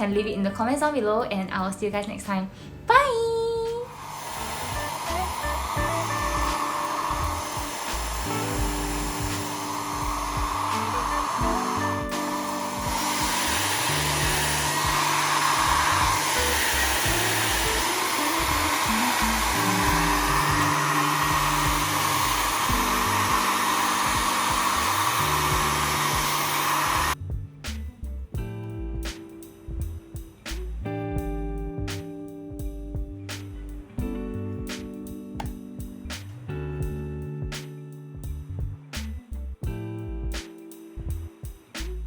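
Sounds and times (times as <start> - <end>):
background music: 0.0 - 42.0
hair dryer blowing: 4.0 - 27.2.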